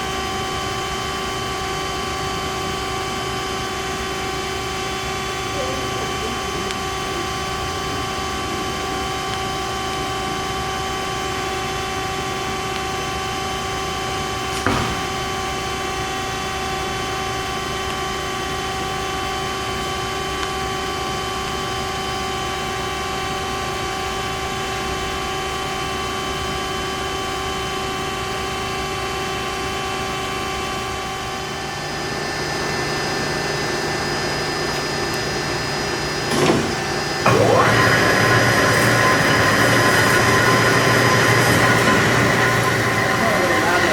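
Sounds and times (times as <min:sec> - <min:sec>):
band saw humming: 0:13.6 - 0:17.0, 0:31.2 - 0:43.9.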